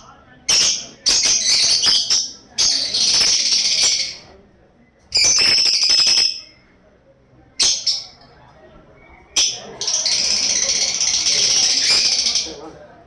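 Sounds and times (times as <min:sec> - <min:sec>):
bird harsh rasping calls: 0:00.5 - 0:04.3, 0:05.2 - 0:06.6, 0:09.4 - 0:12.6.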